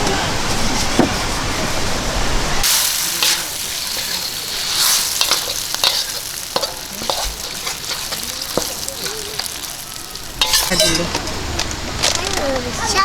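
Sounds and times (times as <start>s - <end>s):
food sizzling in a frying pan: 2.6s - 12.2s.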